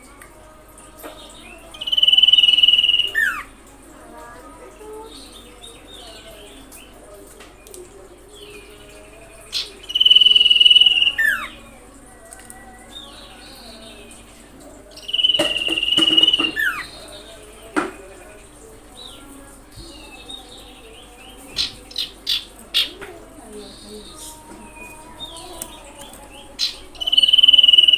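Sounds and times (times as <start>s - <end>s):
soft bird chirps: 14.9s - 17.4s, 23.6s - 27.9s
bird whistled notes: 15.0s - 16.8s.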